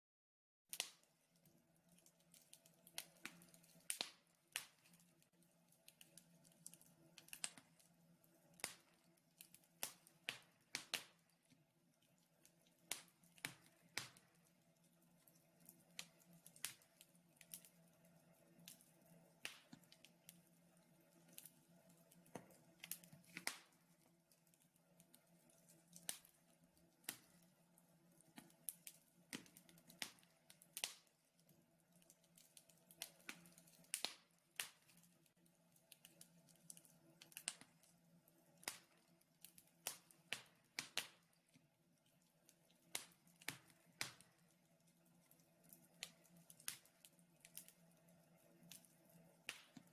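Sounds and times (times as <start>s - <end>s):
wood fire crackling: 0.7s - 49.9s.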